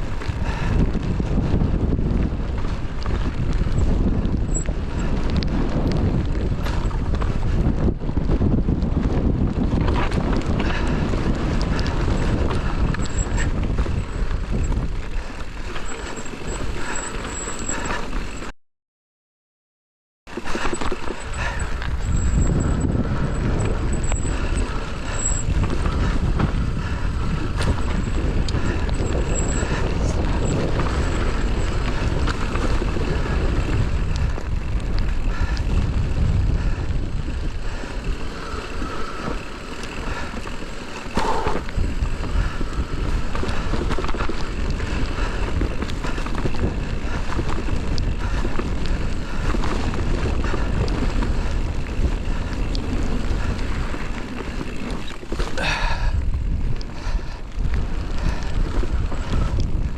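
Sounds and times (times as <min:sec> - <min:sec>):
bike chain and frame rattling: 0:00.0 - 0:18.5, 0:20.3 - 0:59.9
wind buffeting microphone: 0:00.0 - 0:18.5, 0:20.3 - 0:59.9
tyres rolling over gravel: 0:15.2 - 0:18.5, 0:37.6 - 0:56.2.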